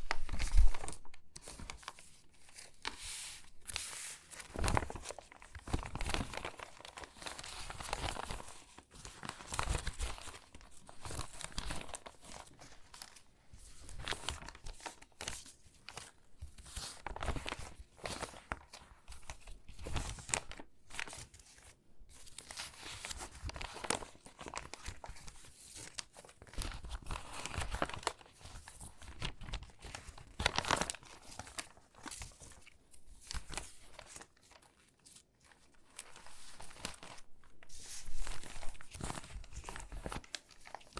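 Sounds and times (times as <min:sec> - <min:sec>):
magazine pages crinkling: 0:00.0 - 0:40.9.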